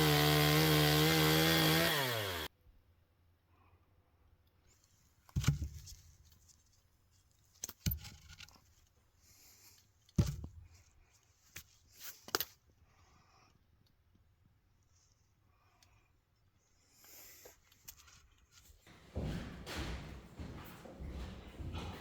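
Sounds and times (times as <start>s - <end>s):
heavy thumps: 18.9s - 22.0s.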